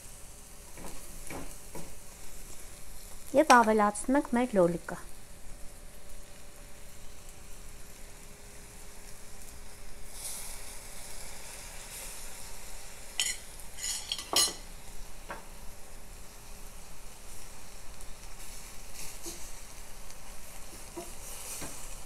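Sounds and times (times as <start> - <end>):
beans sizzling in a pot: 0.0 - 22.0
metal spoon clinking on pot: 13.2 - 14.6.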